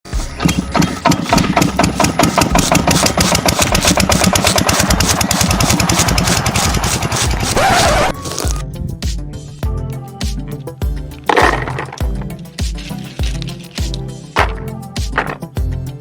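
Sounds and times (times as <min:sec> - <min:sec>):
engine chugging fast: 0:00.8 - 0:08.1.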